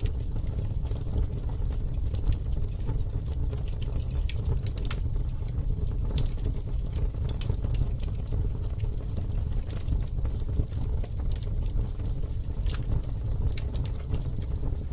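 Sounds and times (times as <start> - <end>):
campfire crackling and popping: 0.0 - 14.9
low rumble of fire: 0.0 - 14.9.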